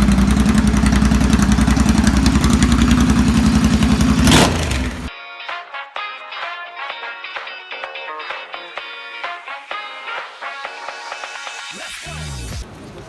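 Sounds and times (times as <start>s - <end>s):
motorcycle engine idling: 0.0s - 5.1s
music: 5.1s - 12.6s.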